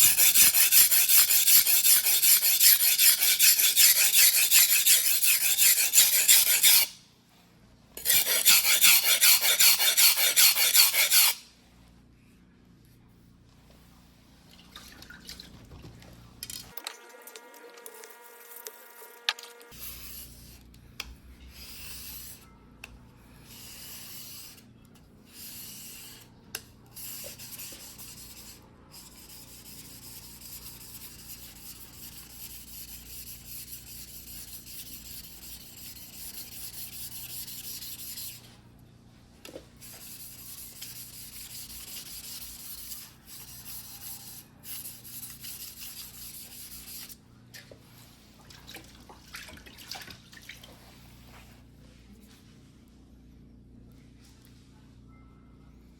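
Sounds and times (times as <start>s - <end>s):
knife grinding on whetstone: 0.0s - 6.9s, 8.0s - 11.4s.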